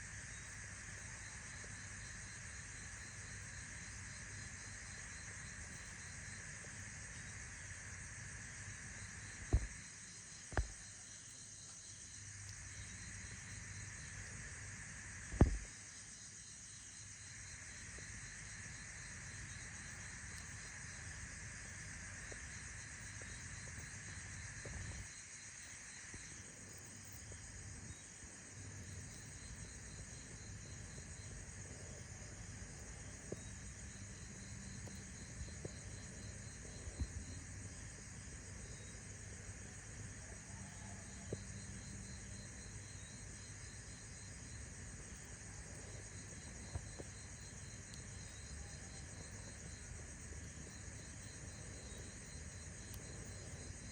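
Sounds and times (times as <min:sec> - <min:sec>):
insects chirping: 0:00.0 - 0:53.9
dull thumps: 0:09.5 - 0:09.7, 0:15.3 - 0:15.7.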